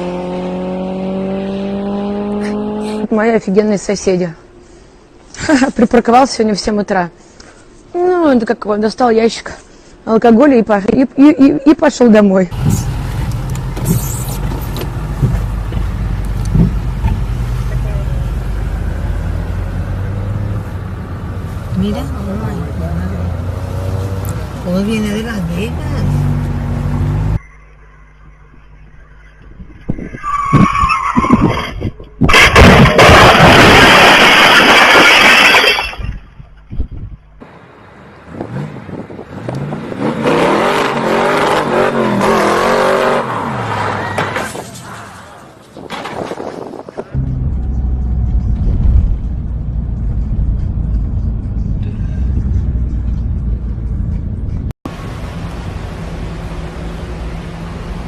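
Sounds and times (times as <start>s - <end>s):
car rumbling on road: 12.4s - 35.4s, 36.6s - 58.0s
car tyres skidding: 30.1s - 35.8s, 40.8s - 46.7s
car crash: 32.2s - 36.3s, 43.6s - 49.6s.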